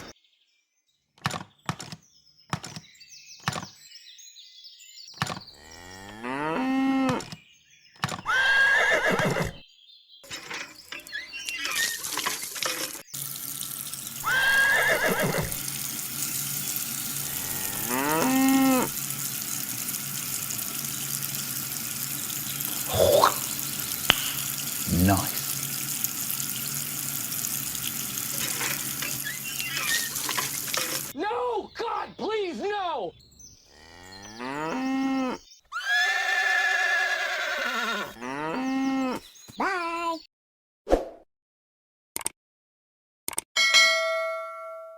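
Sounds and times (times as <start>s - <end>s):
farm animal calls: 8.2s - 9.6s, 14.2s - 15.8s, 16.7s - 20.0s, 20.6s - 25.7s, 26.6s - 40.3s
horse whinnying: 8.2s - 9.6s, 14.2s - 15.6s, 17.2s - 19.0s, 22.8s - 25.3s, 29.2s - 30.4s, 33.8s - 40.1s
water running: 10.3s - 31.2s.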